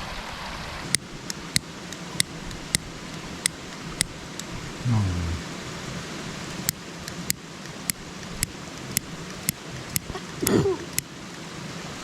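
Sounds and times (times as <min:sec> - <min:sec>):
person grunting: 0:04.8 - 0:05.5, 0:10.4 - 0:10.9.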